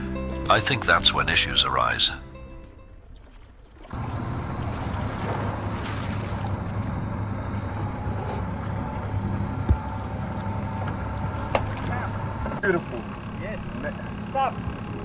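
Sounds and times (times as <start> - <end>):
boat engine hum: 0.0 - 15.0
wind: 0.0 - 15.0
water noise: 2.6 - 13.7.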